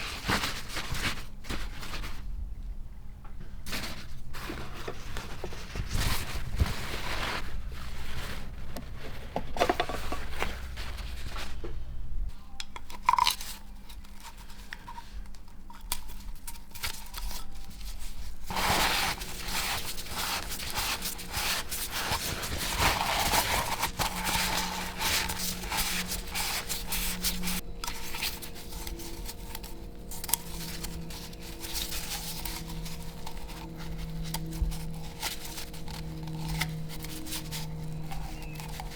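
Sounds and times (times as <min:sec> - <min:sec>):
hands and tools scraping and clicking: 0:12.5 - 0:38.9.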